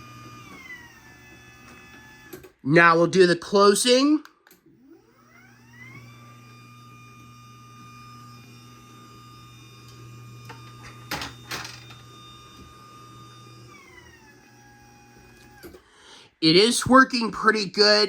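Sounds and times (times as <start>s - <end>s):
garage door opener motor whine: 0.0s - 2.6s, 4.6s - 15.9s.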